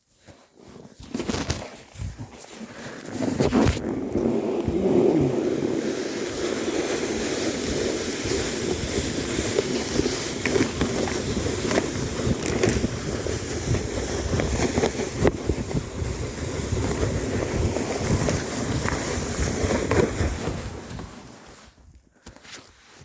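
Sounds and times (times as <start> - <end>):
sled scraping on snow: 0.2 - 21.8
sled knocking over bumps: 3.2 - 21.5
wind rushing over microphone: 3.4 - 21.9.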